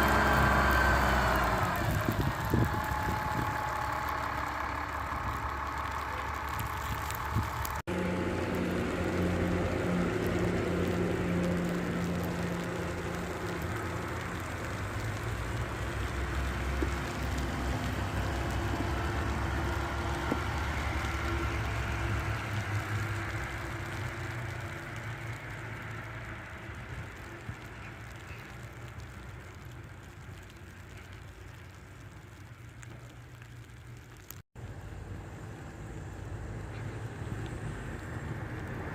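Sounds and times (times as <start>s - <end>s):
bus engine running: 0.0s - 29.8s
tyres hissing on slushy road: 0.0s - 38.9s.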